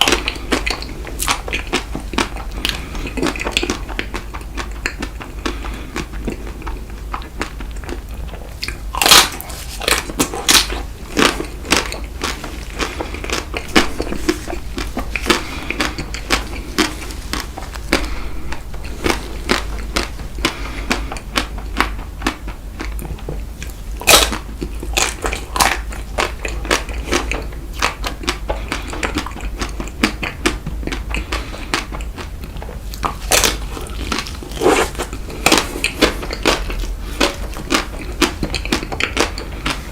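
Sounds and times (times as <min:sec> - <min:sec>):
steady low hum: 0:00.0 - 0:39.9
wet chewing: 0:00.0 - 0:39.9
chocolate shell crunching: 0:24.0 - 0:39.8.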